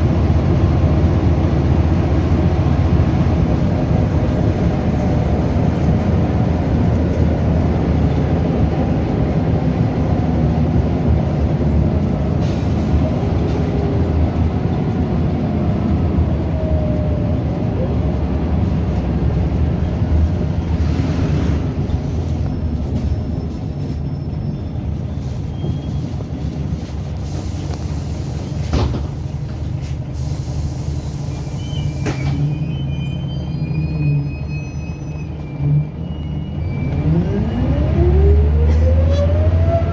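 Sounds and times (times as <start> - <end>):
bus diesel engine running: 0.0 - 39.9
faint high whistling tones: 31.0 - 37.7.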